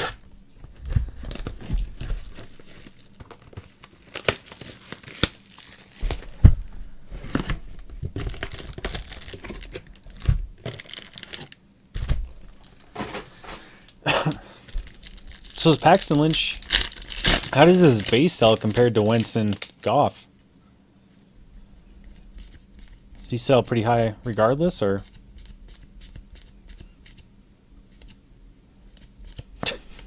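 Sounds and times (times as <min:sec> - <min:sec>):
card pack wrappers crinkling: 0:00.0 - 0:06.5, 0:07.3 - 0:13.2, 0:13.8 - 0:20.1.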